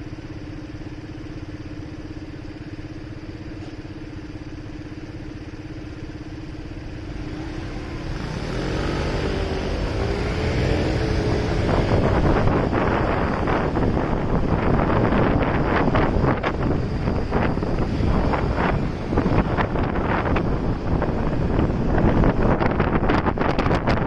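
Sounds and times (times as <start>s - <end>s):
motorcycle engine idling and accelerating: 0.0s - 24.0s
wind noise on microphone: 6.9s - 24.0s.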